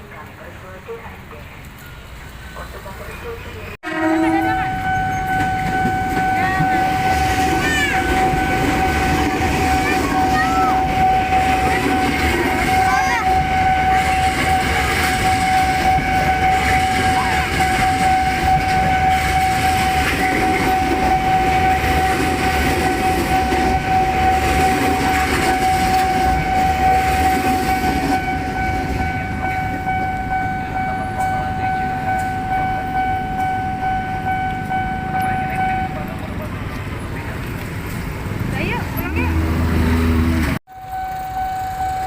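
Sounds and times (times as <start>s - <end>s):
rumble of train wagons: 0.0s - 42.0s
steady high-pitched tone: 40.7s - 42.0s.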